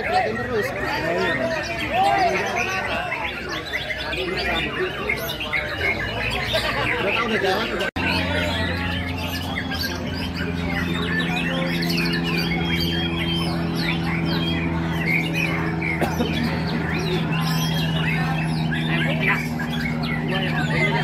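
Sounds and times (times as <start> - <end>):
birds whistling and chirping: 0.0 - 21.0
steady low hum: 6.2 - 21.0.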